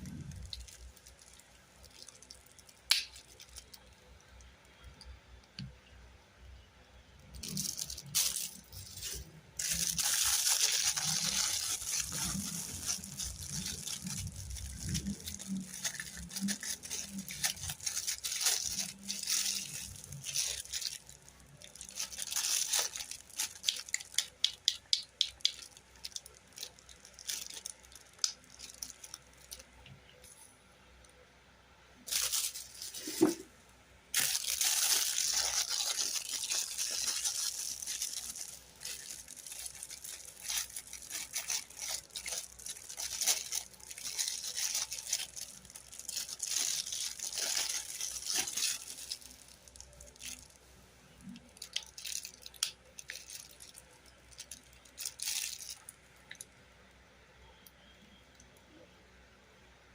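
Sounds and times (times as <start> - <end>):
wrapping crinkling and tearing: 0.0 - 4.9, 7.3 - 30.5, 32.1 - 33.5, 34.1 - 50.6, 51.2 - 56.5.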